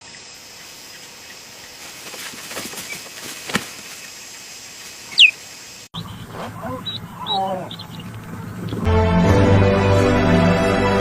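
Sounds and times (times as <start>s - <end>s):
outdoor background hiss: 0.0s - 8.9s
high chirp falling in pitch: 5.1s - 5.4s.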